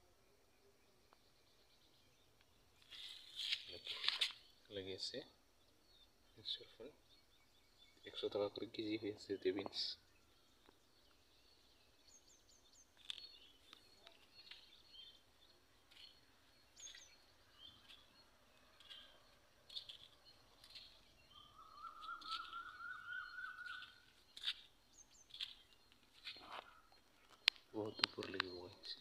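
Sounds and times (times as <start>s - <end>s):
birds chirping: 0.0s - 29.0s
bird trill: 5.9s - 29.0s.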